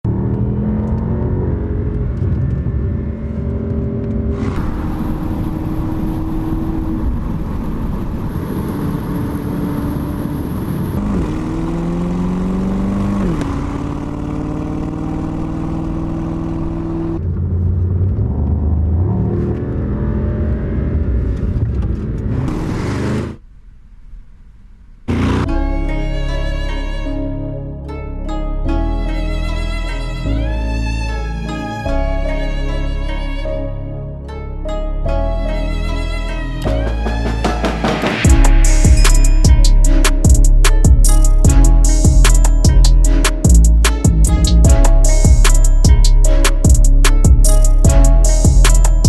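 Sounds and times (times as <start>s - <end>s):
car engine running with gear changes: 0.0s - 25.7s.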